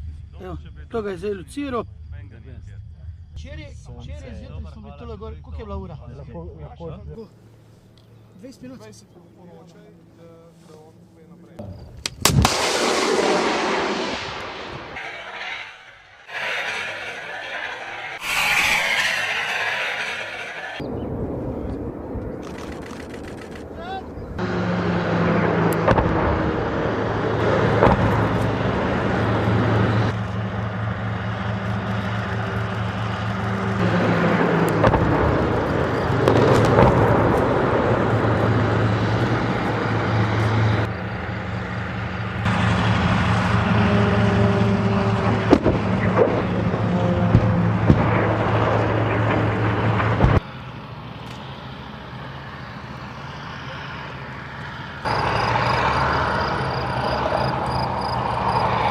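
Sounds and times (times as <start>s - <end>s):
heavy vehicle engines running: 7.2s - 12.0s, 13.9s - 58.9s.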